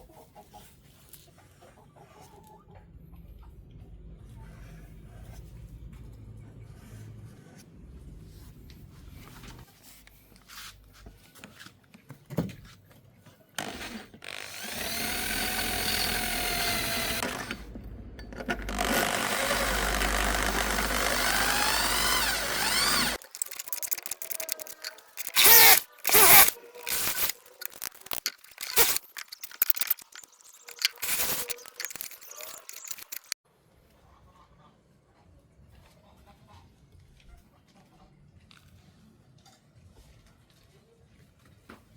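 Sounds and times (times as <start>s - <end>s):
handheld power tool running: 13.6s - 33.4s.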